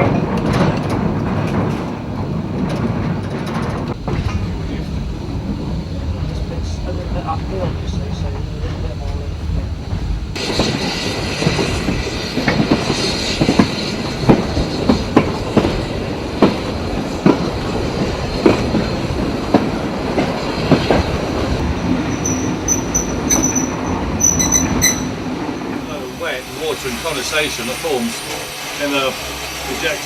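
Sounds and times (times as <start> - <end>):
train wheels knocking on rail joints: 0.0 - 26.1
high wheel squeals: 21.9 - 30.0.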